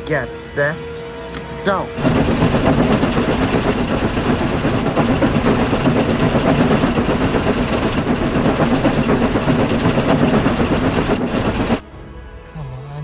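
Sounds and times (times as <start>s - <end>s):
toy trains rattling whir: 2.0s - 11.8s.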